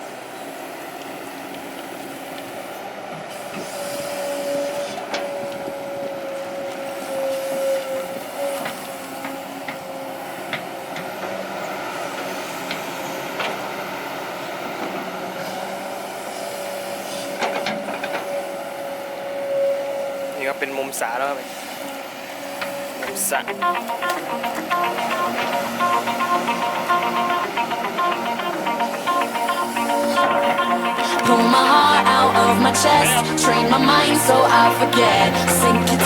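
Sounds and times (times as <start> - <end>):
excavator whine: 0.0 - 20.8, 21.4 - 36.0
excavator engine drone: 21.4 - 36.0.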